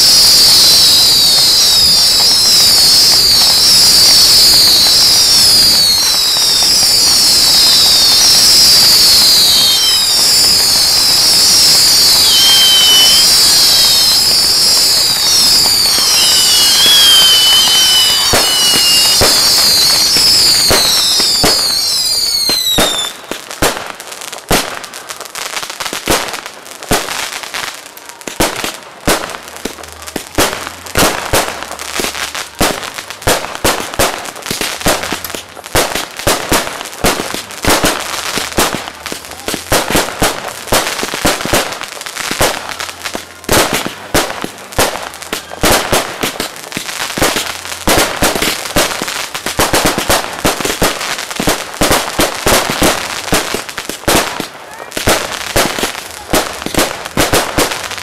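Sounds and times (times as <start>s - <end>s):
falling firework whistles: 0.0s - 24.8s
fireworks bursting: 0.0s - 58.0s.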